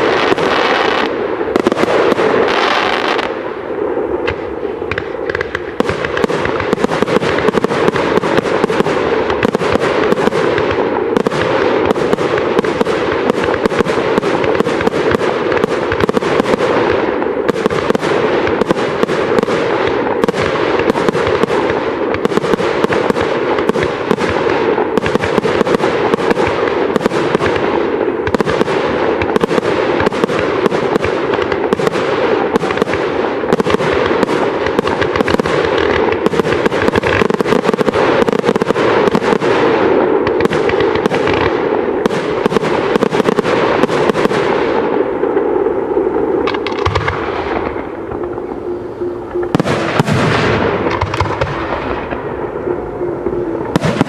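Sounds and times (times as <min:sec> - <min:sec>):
fireworks bursting: 0:00.0 - 0:54.0
steady hum: 0:47.2 - 0:54.0.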